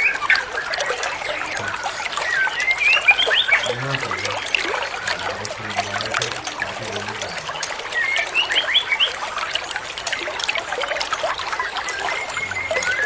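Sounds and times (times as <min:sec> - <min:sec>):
songbird chirping: 0:00.0 - 0:13.0
trickling water: 0:00.0 - 0:13.0.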